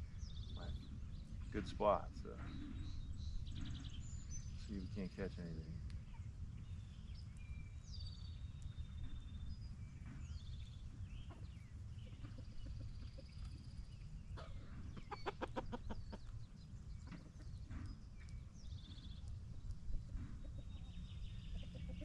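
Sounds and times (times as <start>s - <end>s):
small birds chirping: 0.0s - 22.0s
chickens clucking: 11.2s - 18.0s, 19.3s - 22.0s.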